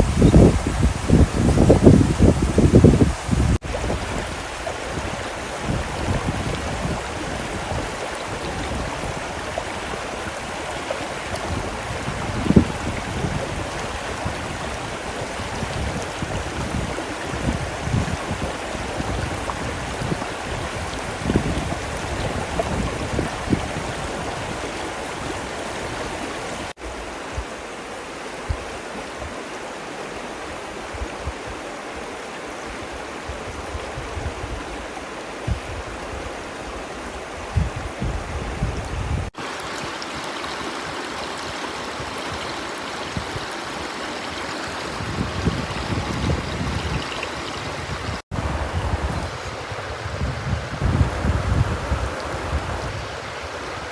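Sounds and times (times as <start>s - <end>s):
river water rushing: 0.0s - 53.9s
low gusty rumbles: 44.8s - 53.2s.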